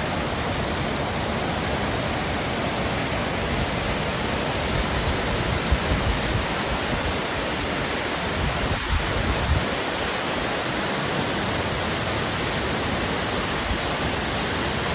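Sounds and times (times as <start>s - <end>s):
waterfall crashing: 0.0s - 14.9s
wind buffeting microphone: 4.6s - 10.6s.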